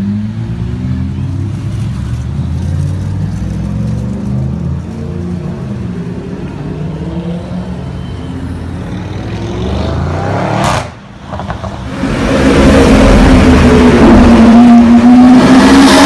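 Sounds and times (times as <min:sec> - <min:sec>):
supercar engine accelerating: 0:11.5 - 0:16.0.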